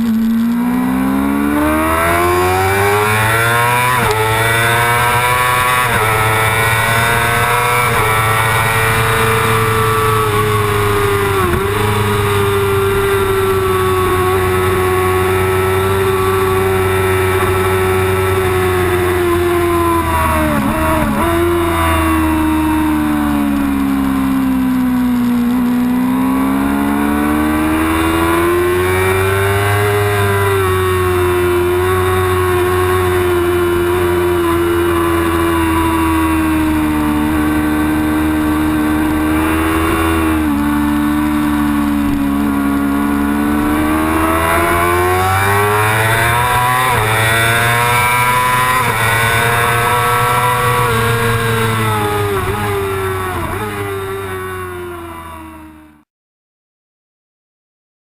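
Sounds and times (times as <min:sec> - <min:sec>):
gear change: 0:00.0 - 0:54.8
motorcycle engine revving: 0:00.0 - 0:56.0.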